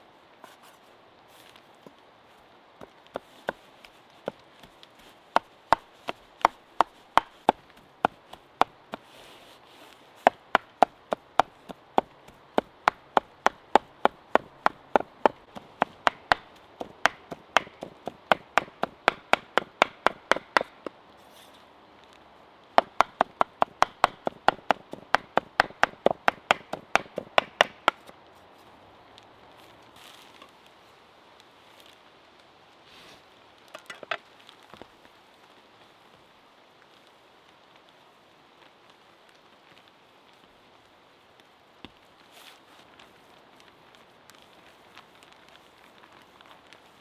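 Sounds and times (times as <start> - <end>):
knife chopping meat: 10.3 - 20.8, 22.8 - 28.1.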